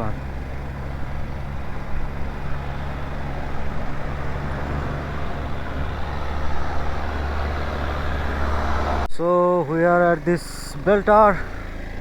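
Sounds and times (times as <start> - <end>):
motorcycle engine running: 0.0 - 9.1
road noise: 0.0 - 12.0.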